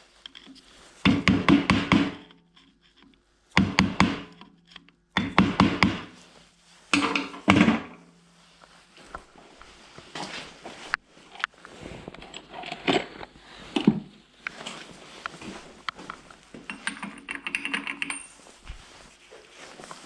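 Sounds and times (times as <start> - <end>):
metal parts and tools clinking: 12.1 - 13.9, 16.6 - 18.6.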